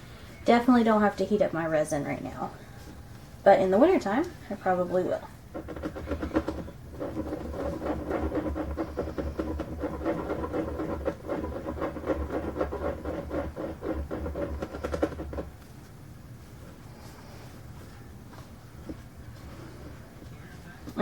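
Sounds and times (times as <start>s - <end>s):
stirrer scraping mixing cup: 5.5s - 15.6s.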